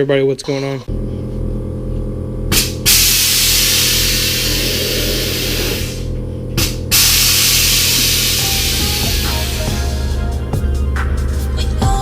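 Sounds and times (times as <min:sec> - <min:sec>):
loud rushing hiss: 0:07.0 - 0:10.4
music with pulsing bass beat: 0:07.1 - 0:12.0.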